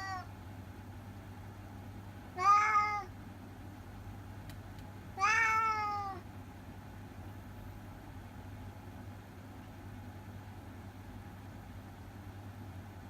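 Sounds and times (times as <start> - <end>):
cat meowing: 0.0 - 0.3, 2.4 - 3.1, 5.2 - 6.2.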